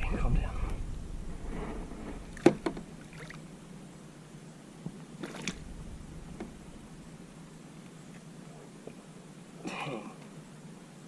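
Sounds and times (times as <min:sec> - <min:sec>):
knocks in a kayak: 0:02.4 - 0:02.9.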